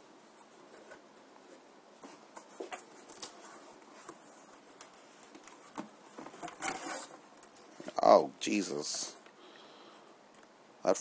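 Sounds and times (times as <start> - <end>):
cardboard packaging rustling: 2.0 - 8.0.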